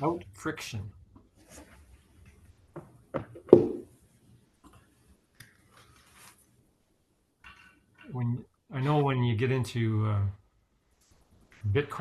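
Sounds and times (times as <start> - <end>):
faint rustle: 5.0 - 6.6.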